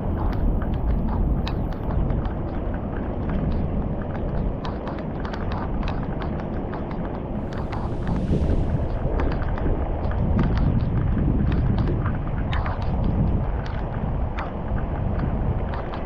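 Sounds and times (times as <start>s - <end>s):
water splashes: 0.0s - 16.0s.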